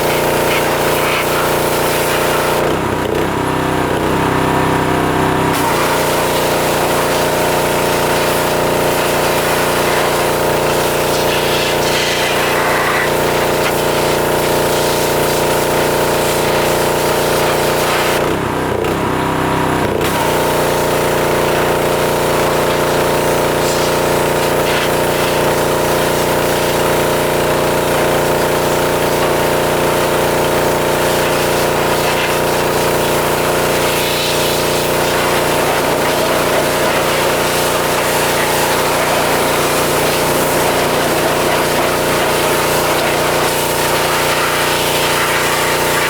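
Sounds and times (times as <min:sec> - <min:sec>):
high-pressure water jet hissing: 0:00.0 - 0:02.8, 0:05.5 - 0:18.4, 0:20.0 - 0:46.0
pressure washer motor humming: 0:00.0 - 0:46.0.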